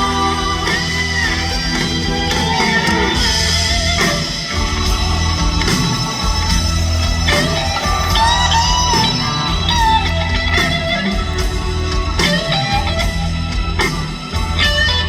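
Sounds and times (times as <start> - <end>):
bass guitar: 0.0 - 15.0
drums: 0.0 - 15.0
electric guitar lead: 0.0 - 15.0.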